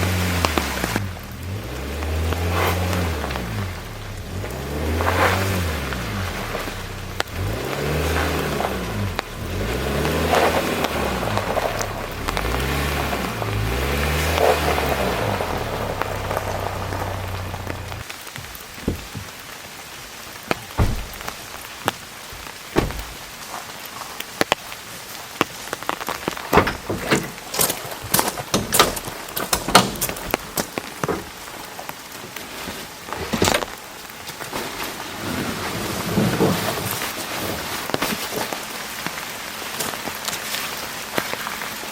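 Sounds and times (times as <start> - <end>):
low engine hum: 0.0 - 18.0
heavy rain falling: 0.0 - 41.9
raindrops tapping a surface: 0.0 - 41.9.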